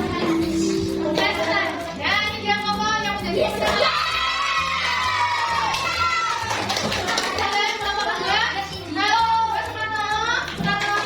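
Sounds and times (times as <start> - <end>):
children singing: 0.0 - 1.9
music: 0.0 - 11.0.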